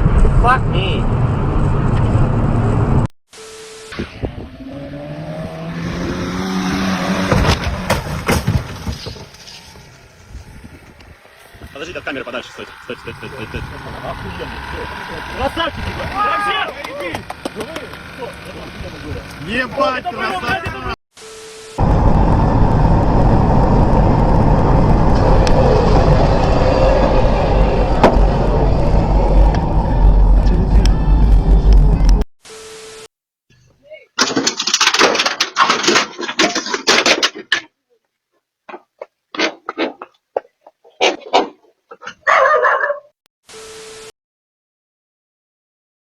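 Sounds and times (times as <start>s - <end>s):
sharp bangs and knocks: 7.1s - 9.4s, 34.2s - 37.7s
vehicle engine running: 8.6s - 20.8s, 21.8s - 32.2s.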